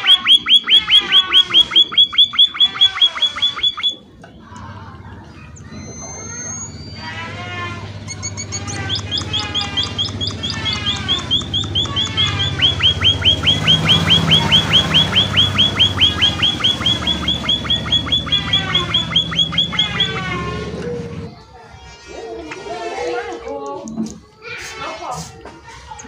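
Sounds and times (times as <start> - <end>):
small finches chirping: 0.1 - 4.0, 8.1 - 20.2.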